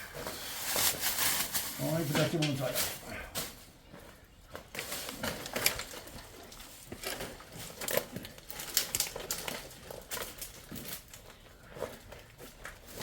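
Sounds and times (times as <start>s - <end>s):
rustling and crackling: 0.0s - 13.0s.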